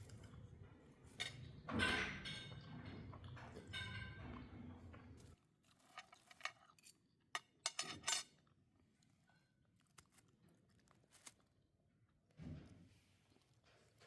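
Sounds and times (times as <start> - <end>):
dishes and cutlery clinking: 0.0 - 4.8, 5.8 - 8.4.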